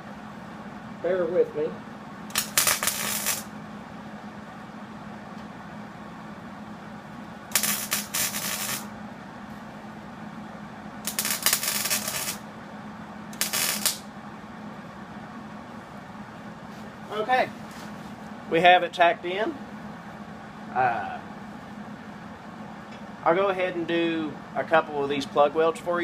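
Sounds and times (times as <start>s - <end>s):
steady low hum: 0.0s - 26.0s
welder arc crackling: 2.2s - 3.6s, 7.4s - 9.0s, 11.0s - 12.5s, 13.3s - 14.1s.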